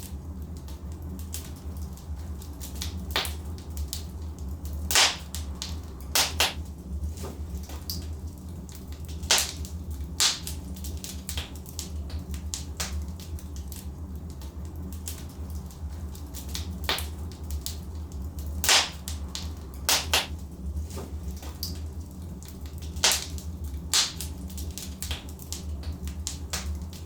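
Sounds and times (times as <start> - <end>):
steady low rumble: 0.0 - 27.0
wood logs crackling in fireplace: 0.0 - 27.0.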